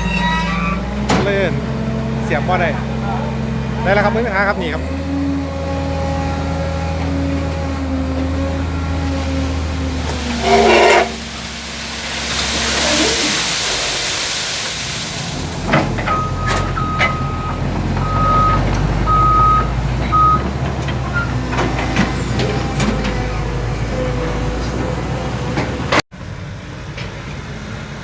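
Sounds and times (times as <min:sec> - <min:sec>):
diesel engine idling: 0:00.8 - 0:25.9
reversing alarm beeps: 0:16.1 - 0:20.4.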